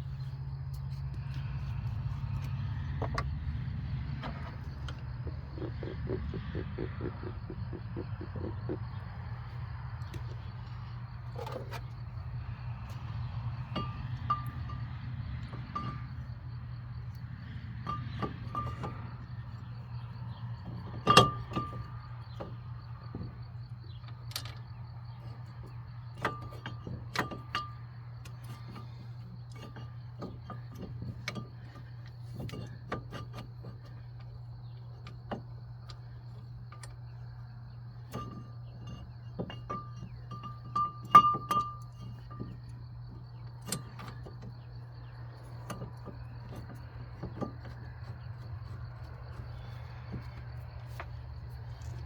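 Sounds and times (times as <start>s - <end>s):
low hum: 0.0s - 23.7s
metal tools clinking and clanking: 13.6s - 16.3s, 17.8s - 19.6s, 20.6s - 22.5s, 24.2s - 37.2s, 37.9s - 52.0s.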